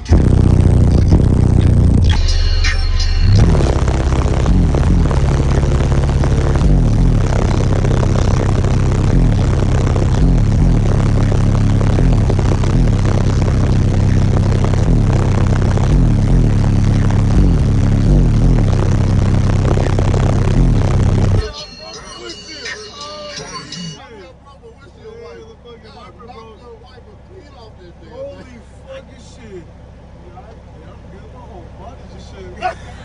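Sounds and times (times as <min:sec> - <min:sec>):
loud bass-heavy music: 0:00.0 - 0:25.4.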